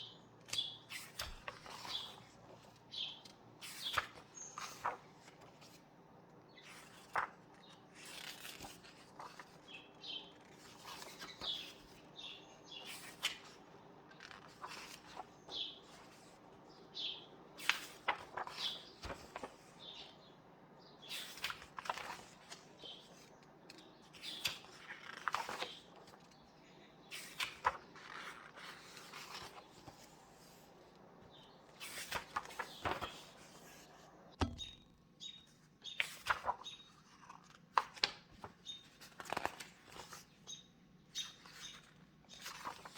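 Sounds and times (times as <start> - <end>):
book pages turning: 0.4 - 5.9, 6.6 - 12.1, 12.8 - 16.5, 17.5 - 19.8, 21.1 - 26.4, 27.1 - 34.8, 35.9 - 40.3, 41.2 - 42.9
bird chirps: 34.5 - 36.0.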